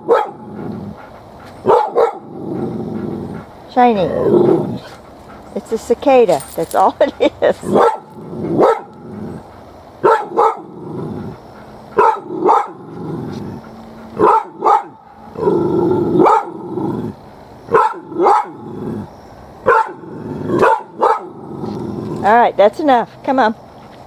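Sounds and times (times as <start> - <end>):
puppy barking: 0.0 - 0.5, 1.6 - 2.3, 7.6 - 9.0, 10.0 - 10.7, 12.0 - 12.9, 14.2 - 15.1, 16.2 - 16.6, 17.7 - 18.6, 19.7 - 20.0, 20.6 - 21.4
puppy growling: 0.0 - 1.1, 2.0 - 5.2, 7.0 - 17.3, 18.0 - 19.2, 19.9 - 22.4.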